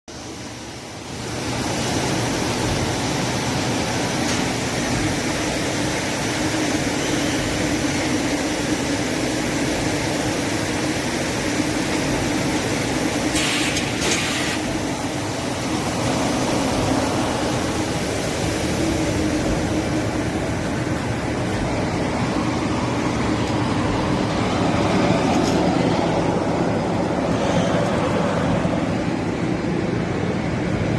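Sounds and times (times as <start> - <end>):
short burst of hiss: 13.3 - 14.7.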